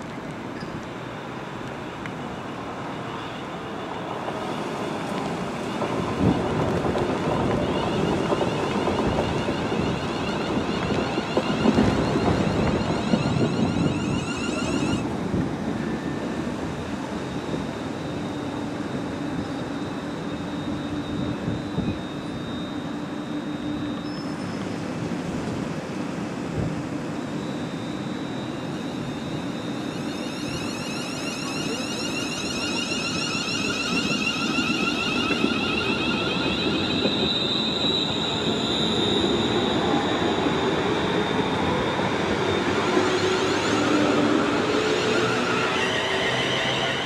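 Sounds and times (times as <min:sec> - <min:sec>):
passenger train rumbling: 0:00.0 - 0:47.0
high whining tones: 0:01.8 - 0:47.0.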